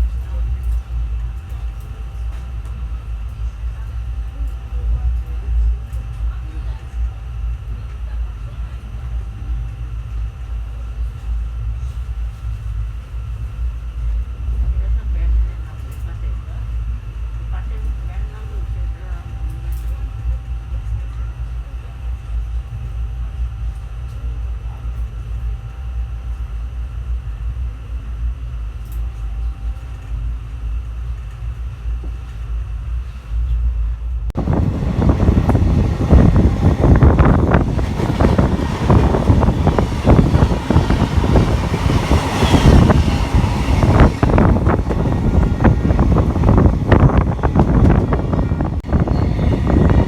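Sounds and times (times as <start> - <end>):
train rumble: 0.0 - 50.0
train wheels clattering on rails: 34.4 - 50.0.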